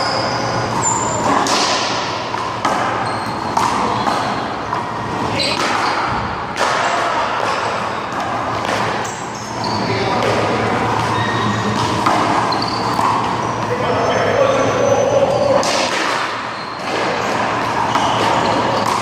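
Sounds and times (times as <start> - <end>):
handball smacking: 15.6 - 19.0.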